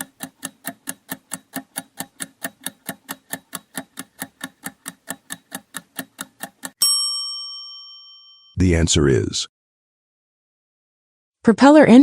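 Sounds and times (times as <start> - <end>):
rapid clock-like ticking: 0.0 - 6.8.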